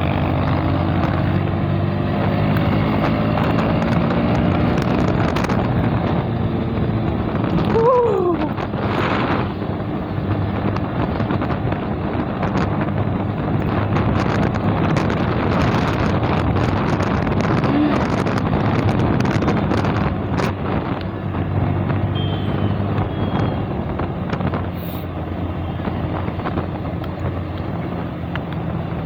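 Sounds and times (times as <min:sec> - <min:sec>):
motorcycle engine running: 0:00.0 - 0:29.0
wind buffeting microphone: 0:00.0 - 0:29.0.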